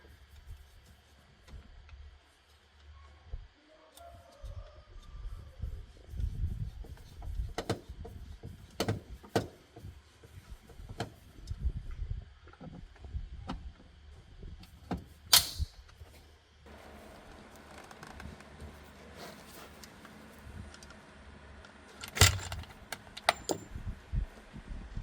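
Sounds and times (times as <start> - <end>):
car parts and tools knocking: 23.3 - 23.7.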